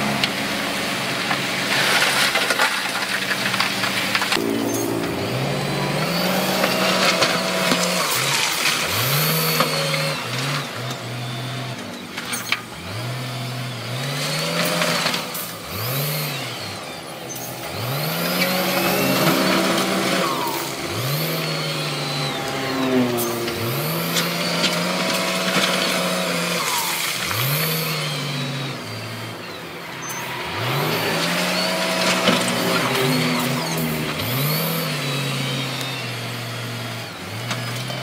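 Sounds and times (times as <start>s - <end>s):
heavy machine diesel engines revving: 0.0s - 38.0s.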